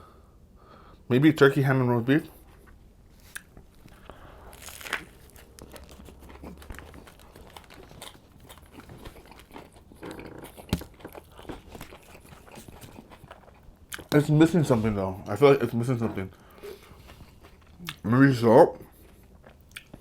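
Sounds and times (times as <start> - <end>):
man chewing a sandwich: 2.3 - 20.0
small crunches: 2.6 - 14.8.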